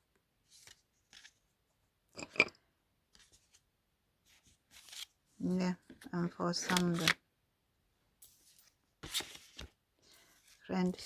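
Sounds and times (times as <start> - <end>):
cards rustling and sliding: 0.5 - 1.4, 4.4 - 5.2, 5.9 - 7.2, 9.0 - 9.8.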